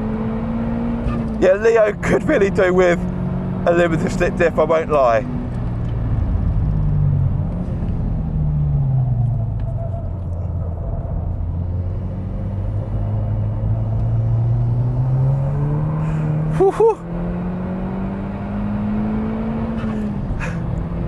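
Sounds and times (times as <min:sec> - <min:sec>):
car engine accelerating: 0:00.0 - 0:21.0
tyre and road noise: 0:00.0 - 0:21.0.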